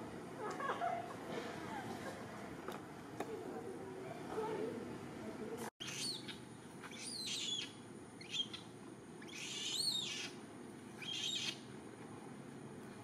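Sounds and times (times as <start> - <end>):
bird whistled calls: 5.8 - 8.6, 9.2 - 10.4, 11.0 - 11.6.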